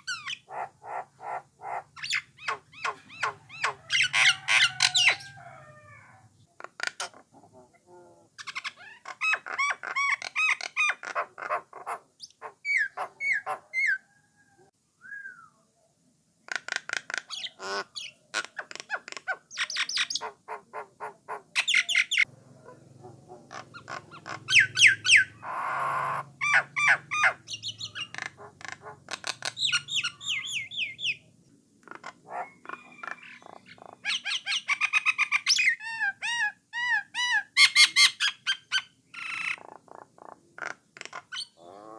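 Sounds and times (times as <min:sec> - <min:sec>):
harsh rasping bird call: 0:00.0 - 0:06.2, 0:23.4 - 0:31.2.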